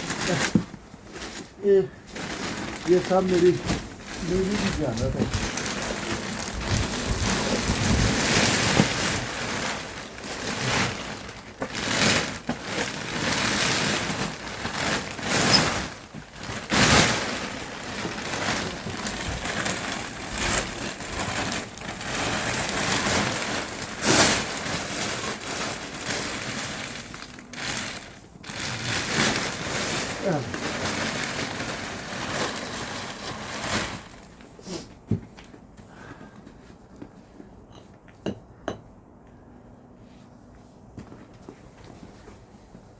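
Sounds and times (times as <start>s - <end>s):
shovel scraping and crunching snow: 28.5s - 31.2s.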